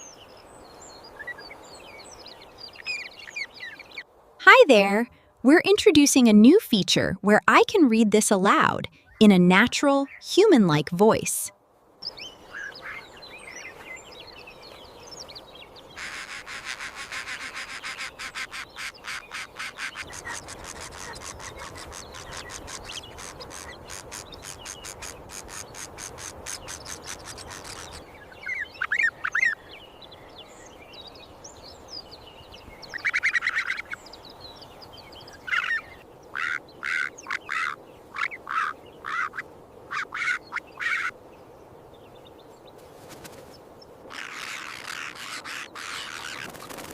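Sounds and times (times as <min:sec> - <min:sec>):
bird croaking calls: 0:15.9 - 0:29.7, 0:32.9 - 0:34.1, 0:35.3 - 0:41.2, 0:44.1 - 0:46.8
bird harsh pulsing call: 0:35.4 - 0:41.2.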